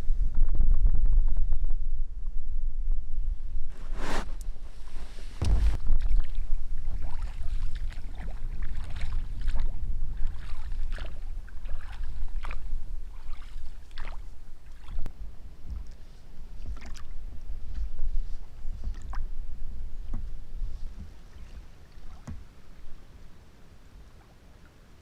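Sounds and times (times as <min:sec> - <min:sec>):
steady low rumble: 0:00.0 - 0:15.6
oars splashing in water: 0:04.8 - 0:15.0, 0:16.6 - 0:17.2.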